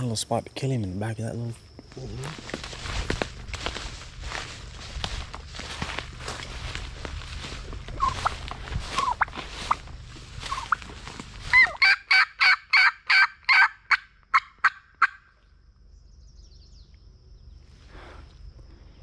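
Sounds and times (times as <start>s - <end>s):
footsteps in dry leaves: 2.0s - 11.9s
turkey call yelps: 8.0s - 9.8s, 10.4s - 15.3s.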